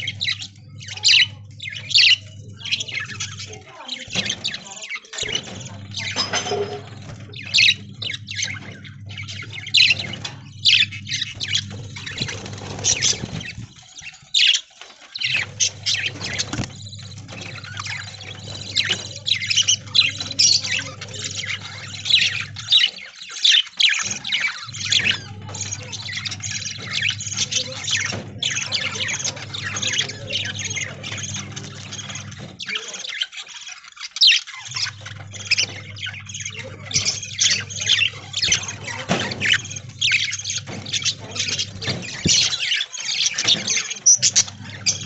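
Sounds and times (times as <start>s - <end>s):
budgerigars chirping and squawking: 0.0s - 45.0s.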